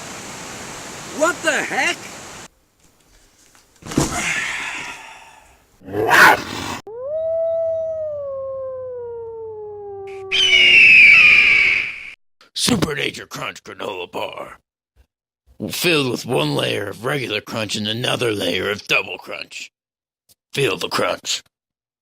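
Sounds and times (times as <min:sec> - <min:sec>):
long howl falling in pitch: 0:06.9 - 0:11.7.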